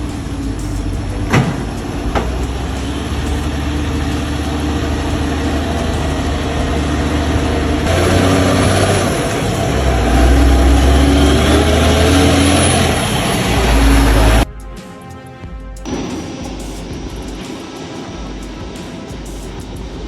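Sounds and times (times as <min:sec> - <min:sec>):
truck engine running: 0:00.0 - 0:14.5.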